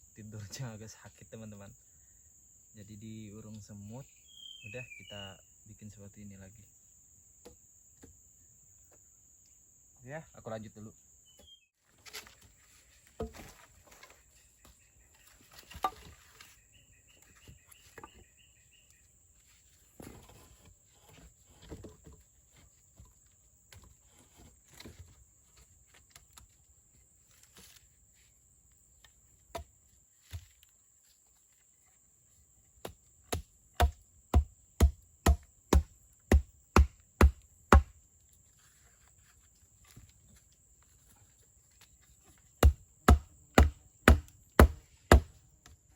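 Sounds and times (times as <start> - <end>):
knocks and rustles: 11.9 - 16.6
blade chopping wood: 32.8 - 38.0, 42.6 - 45.8.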